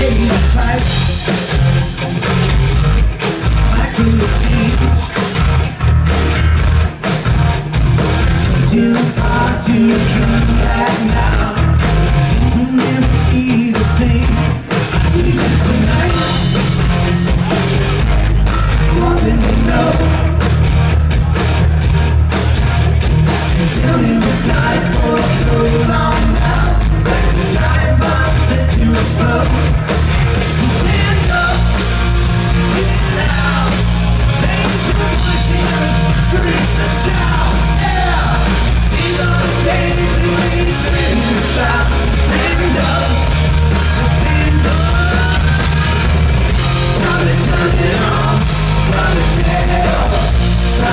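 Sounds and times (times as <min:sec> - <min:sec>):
rock band playing loudly: 0:00.0 - 0:50.9
person singing: 0:08.4 - 0:16.8, 0:18.7 - 0:20.4, 0:23.5 - 0:46.1, 0:46.8 - 0:50.9.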